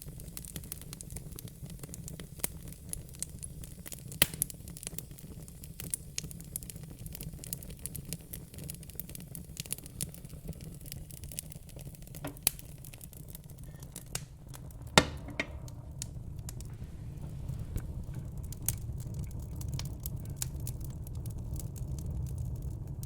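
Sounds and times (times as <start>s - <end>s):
fire crackling and popping: 0.0s - 23.0s
low rumble: 14.2s - 23.0s.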